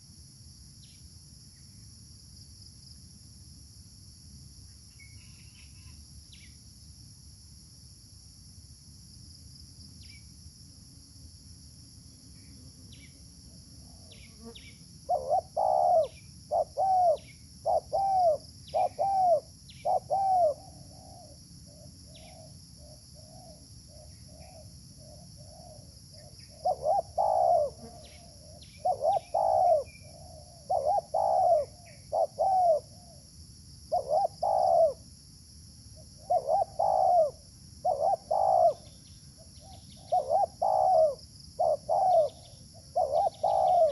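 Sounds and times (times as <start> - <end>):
high insect drone: 0.0 - 43.9
dove cooing: 15.1 - 33.2, 33.9 - 35.0, 36.2 - 38.9, 39.6 - 43.9.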